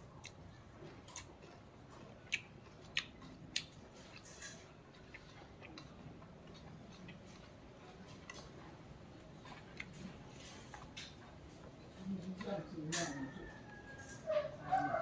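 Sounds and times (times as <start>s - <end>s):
chewing leaves and rice: 0.0s - 15.0s.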